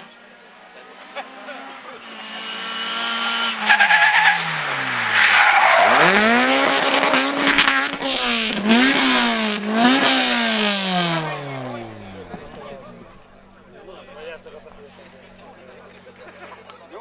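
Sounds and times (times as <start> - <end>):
race car engine revving: 0.0 - 16.2
tyres squealing and skidding: 0.7 - 9.2.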